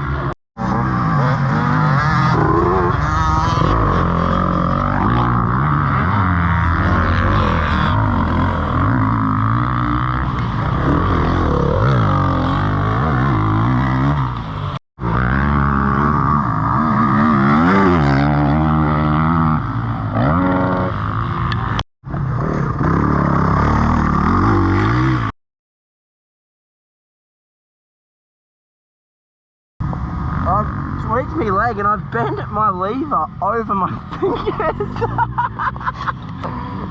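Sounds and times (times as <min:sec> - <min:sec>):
dirt bike engine revving: 0:00.0 - 0:25.3.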